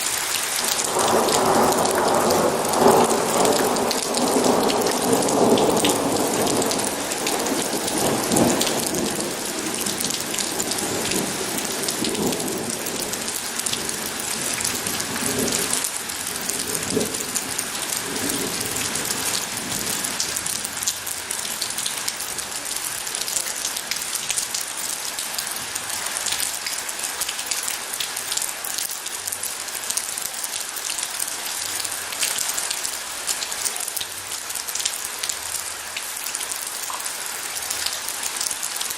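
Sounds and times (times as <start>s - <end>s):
heavy rain falling: 0.0s - 38.9s
thunder rumbling: 0.6s - 21.2s.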